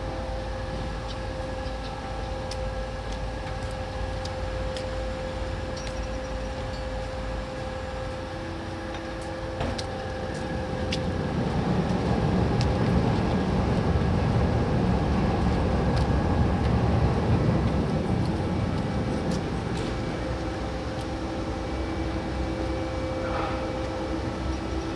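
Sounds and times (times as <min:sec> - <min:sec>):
ferry engines rumbling: 0:00.0 - 0:24.9.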